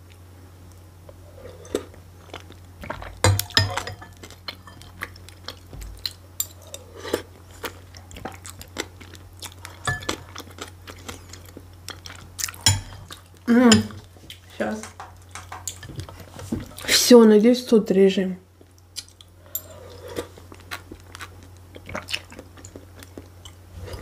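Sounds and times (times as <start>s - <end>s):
close chewing with crunches: 1.0s - 14.5s, 18.6s - 24.0s
metal spoon clinking glass bowl: 3.3s - 4.9s, 12.6s - 13.0s.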